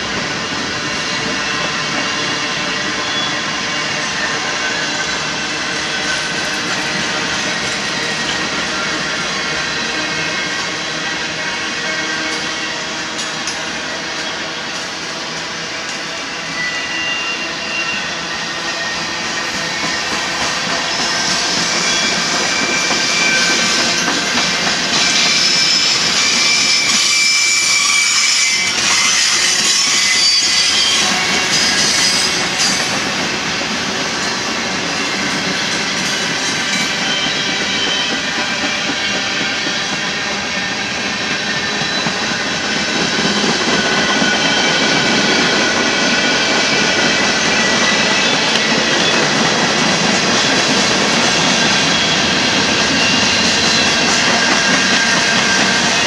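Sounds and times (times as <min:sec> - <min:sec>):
freight train wheels rumbling: 0:00.0 - 0:56.0
wheels squealing on curve: 0:16.2 - 0:24.1, 0:24.9 - 0:32.9.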